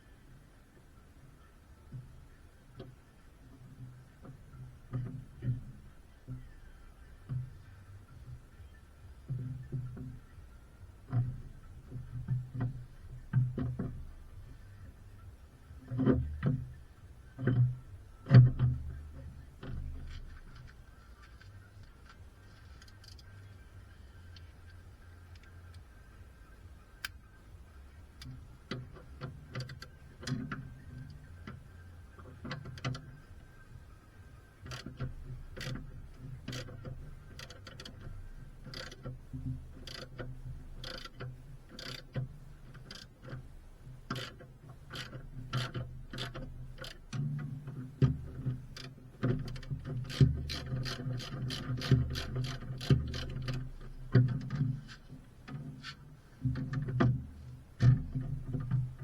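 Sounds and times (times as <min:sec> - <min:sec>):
low steady hum: 0:00.0 - 0:59.0
ratchet clicking: 0:36.5 - 0:39.1, 0:39.8 - 0:40.2, 0:40.8 - 0:43.4, 0:44.1 - 0:47.2.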